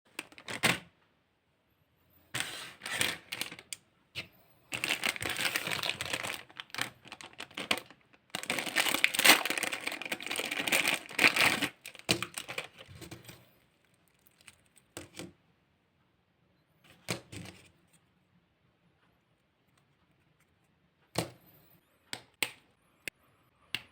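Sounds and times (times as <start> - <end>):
packaging crinkling and tearing: 0.1 - 0.8, 2.8 - 3.7, 4.7 - 13.0.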